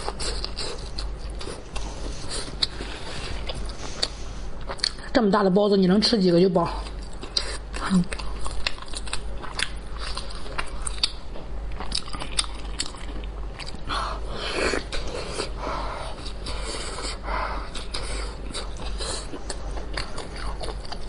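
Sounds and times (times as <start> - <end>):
person chewing food: 0.0 - 5.1, 6.8 - 21.0.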